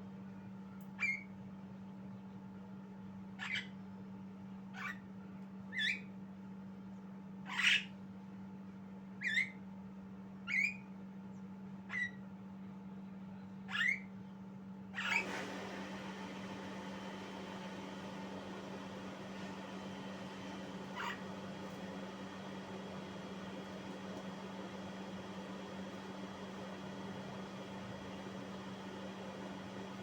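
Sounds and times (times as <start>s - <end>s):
steady low hum: 8.0s - 30.0s
myna bird calls: 20.8s - 21.4s.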